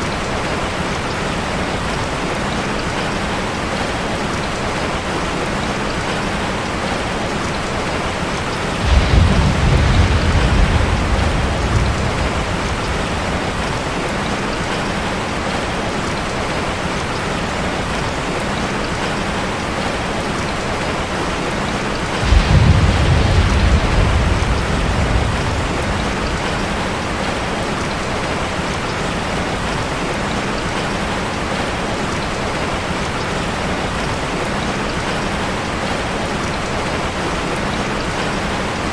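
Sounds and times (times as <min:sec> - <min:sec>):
heavy rain on metal roof: 0:00.0 - 0:38.9
thunder rumbling: 0:08.4 - 0:16.2, 0:21.9 - 0:29.8.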